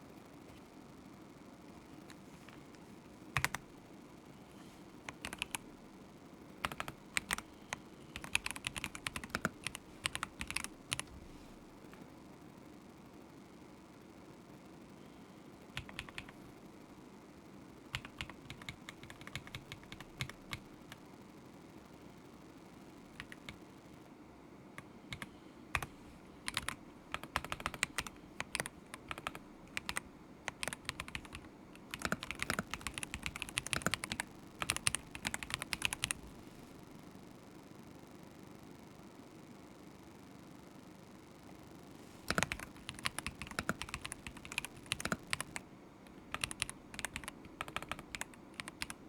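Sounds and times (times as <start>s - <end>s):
mechanical keyboard typing: 3.4s - 3.6s, 5.1s - 5.6s, 6.6s - 7.4s, 8.2s - 11.1s, 15.8s - 16.4s, 17.9s - 20.7s, 23.2s - 23.6s, 25.1s - 25.9s, 26.5s - 36.3s, 42.3s - 45.6s, 46.3s - 49.0s.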